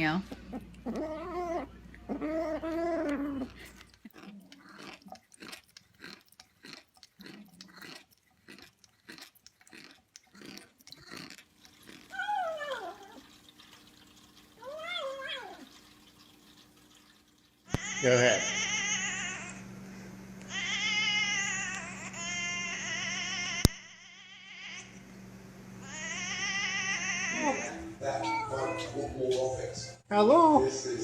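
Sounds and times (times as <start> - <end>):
cat yowling: 0.5 - 3.7, 12.1 - 13.2, 14.6 - 15.7, 17.7 - 19.6, 20.5 - 24.9, 25.8 - 29.0
cat meowing: 17.7 - 19.6, 20.5 - 24.9, 25.8 - 29.0.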